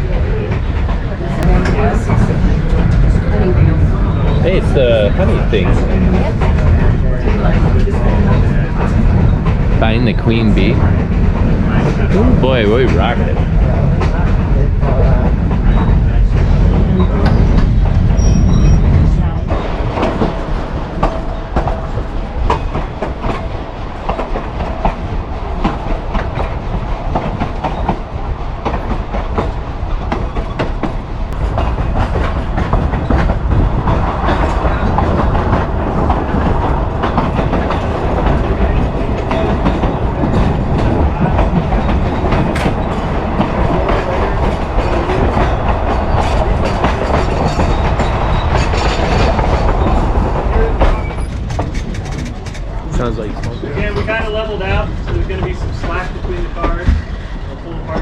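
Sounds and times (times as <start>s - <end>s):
train wheels clacking on rails: 0.0s - 58.0s.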